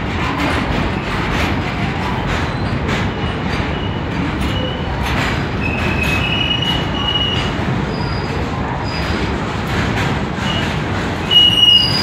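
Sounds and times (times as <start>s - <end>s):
goods train rumbling past: 0.0s - 12.0s
high-pitched wheel squeals: 11.2s - 12.0s.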